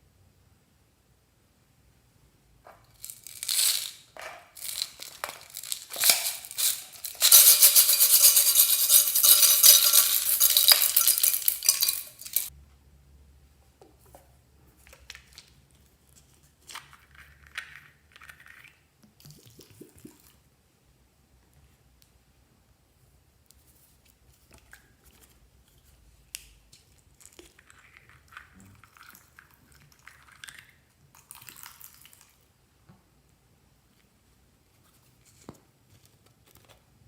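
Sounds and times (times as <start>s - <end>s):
faint handling sounds: 2.6s - 12.5s, 23.4s - 27.3s, 33.8s - 37.0s
containers and utensils clinking: 2.7s - 12.5s.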